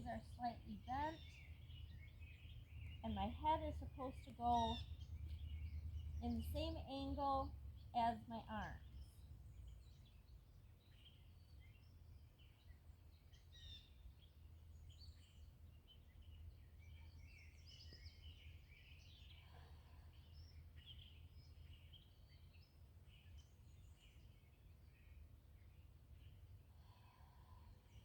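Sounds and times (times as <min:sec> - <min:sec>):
low steady rumble: 0:00.0 - 0:10.3
faint birdsong chirps: 0:00.0 - 0:28.0.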